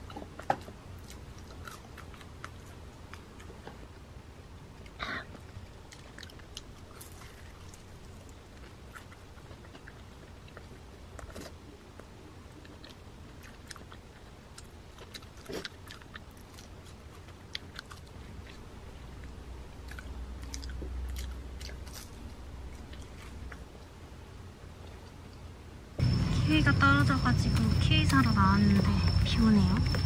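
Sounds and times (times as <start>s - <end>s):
crunchy biting and chewing: 0.0s - 4.0s, 5.3s - 24.0s
low rumble: 26.0s - 30.0s.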